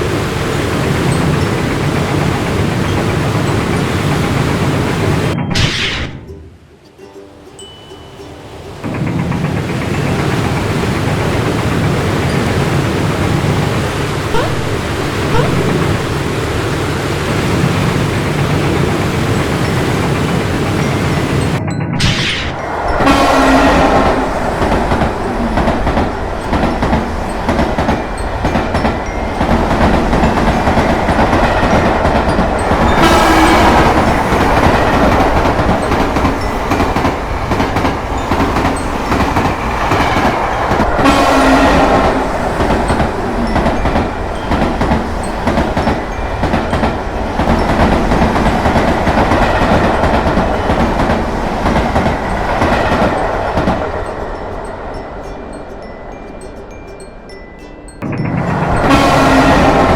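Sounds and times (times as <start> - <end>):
train wheels clattering over joints: 0.0 - 5.4, 8.8 - 54.4, 58.1 - 59.9
train horn: 22.6 - 27.2, 29.4 - 44.9, 58.5 - 59.9.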